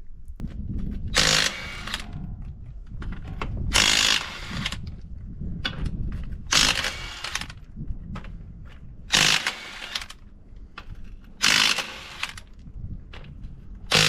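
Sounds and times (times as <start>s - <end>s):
impact wrench bursts: 1.2s - 2.1s, 3.7s - 4.8s, 6.5s - 7.6s, 9.1s - 10.2s, 11.4s - 12.5s.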